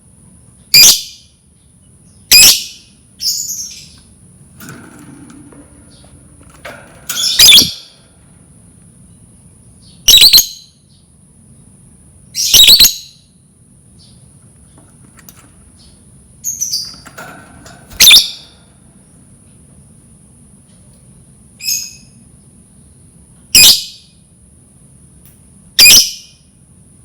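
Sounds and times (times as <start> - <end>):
lovebird chirping: 7.2 - 7.9, 9.8 - 10.7, 12.4 - 13.2.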